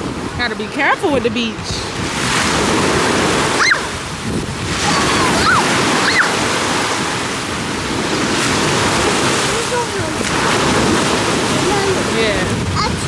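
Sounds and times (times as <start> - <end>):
ocean surf washing ashore: 0.0 - 13.0
wind buffeting microphone: 0.0 - 13.0
short high calls: 3.5 - 4.0, 4.9 - 6.6.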